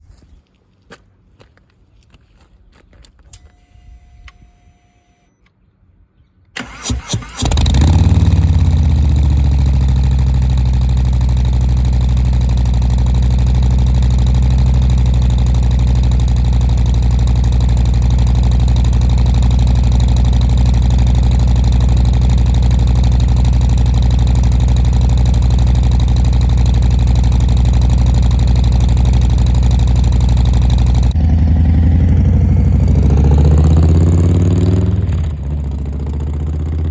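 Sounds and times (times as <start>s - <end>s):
motorcycle starter cranking: 6.6s - 9.9s
motorcycle engine idling: 7.4s - 36.9s.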